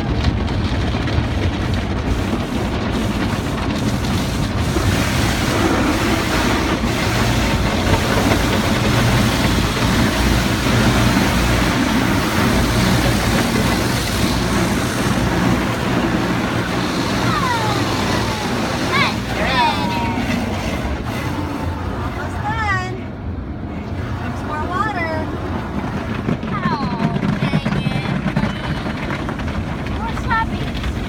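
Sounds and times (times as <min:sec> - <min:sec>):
car wash machinery hum: 0:00.0 - 0:31.0
water spray rushing: 0:01.4 - 0:22.3.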